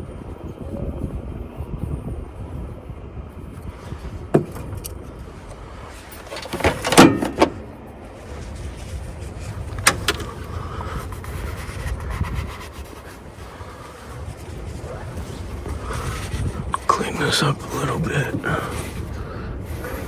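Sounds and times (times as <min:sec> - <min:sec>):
steady low rumble: 0:00.0 - 0:20.0
clatter of hard knocks: 0:04.3 - 0:04.9, 0:06.2 - 0:07.8.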